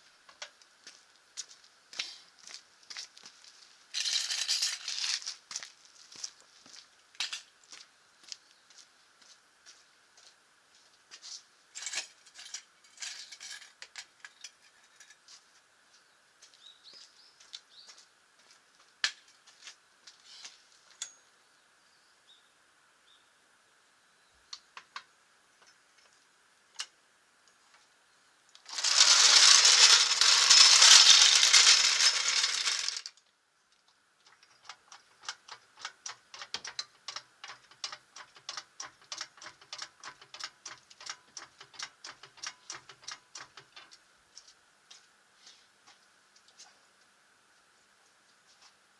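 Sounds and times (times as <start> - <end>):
ratchet clicks: 28.7 - 33.1.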